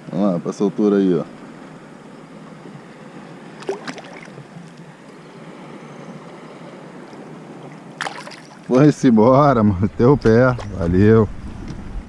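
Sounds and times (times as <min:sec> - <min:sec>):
water noise: 0:00.0 - 0:12.0
wind noise: 0:09.2 - 0:12.0.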